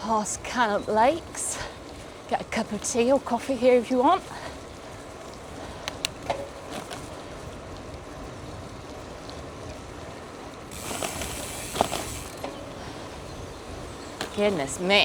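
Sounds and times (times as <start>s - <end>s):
bike tyres on wet gravel: 0.0s - 15.0s
bike clicks and knocks: 5.8s - 7.2s, 10.7s - 12.8s, 14.0s - 14.9s.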